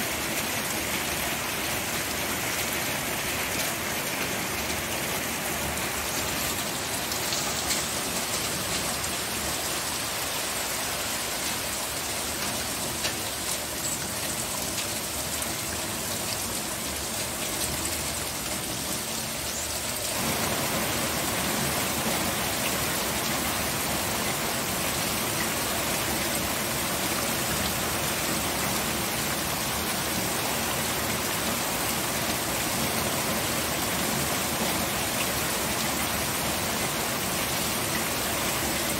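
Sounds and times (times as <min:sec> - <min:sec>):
steady rain falling: 0:00.0 - 0:38.9
separate raindrop ticks: 0:12.4 - 0:15.6.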